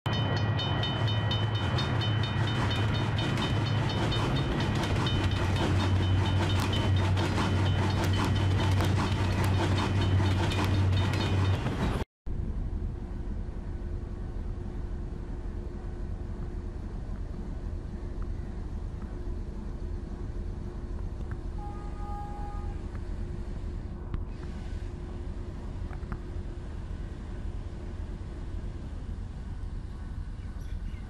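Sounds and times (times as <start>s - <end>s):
outdoor background: 0.1s - 31.0s
train rumbling past: 0.1s - 31.0s
clickety-clack of wheels: 0.4s - 12.0s.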